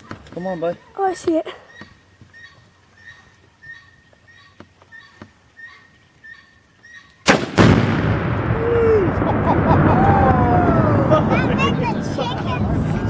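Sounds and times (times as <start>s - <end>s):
faint chirping: 0.4s - 7.2s
rifle shot: 7.2s - 10.0s
explosive target boom: 7.3s - 12.8s
loud rumble: 7.5s - 13.0s.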